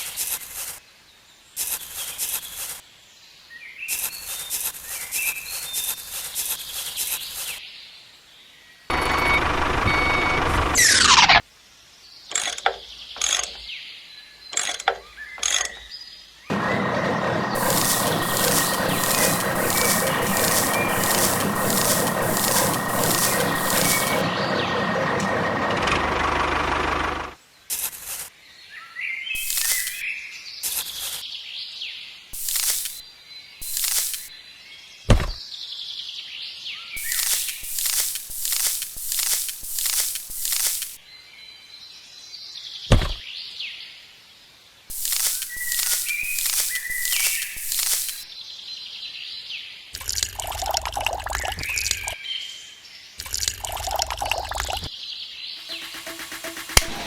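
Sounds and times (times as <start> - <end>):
truck engine running: 8.9 - 10.9, 16.5 - 27.4, 55.6 - 57.0
rasping mechanical noise with buzz: 8.9 - 11.4, 16.5 - 27.4, 32.4 - 33.0, 37.0 - 41.0, 44.9 - 48.2, 55.6 - 57.0
reversing beeper: 8.9 - 11.4, 16.5 - 26.1
birds chirping: 12.3 - 26.2, 29.3 - 30.1, 36.8 - 41.1, 44.9 - 48.4
short scraping strokes: 17.5 - 24.3, 37.0 - 41.0, 44.9 - 48.2, 55.6 - 57.0
short bursts of high hiss: 17.6 - 24.3, 29.4 - 30.0, 32.4 - 33.0, 33.6 - 34.3, 37.0 - 41.0, 44.9 - 48.3, 55.6 - 57.0.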